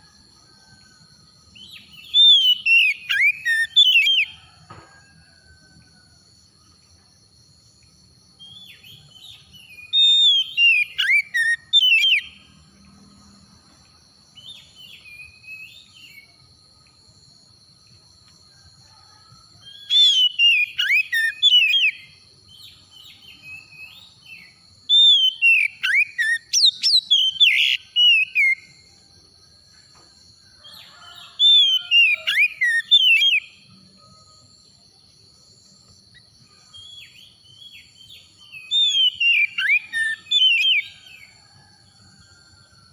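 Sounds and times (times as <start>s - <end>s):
bird singing whistled phrases: 1.6s - 4.3s, 9.7s - 12.3s, 19.9s - 22.0s, 24.9s - 28.6s, 38.6s - 40.9s.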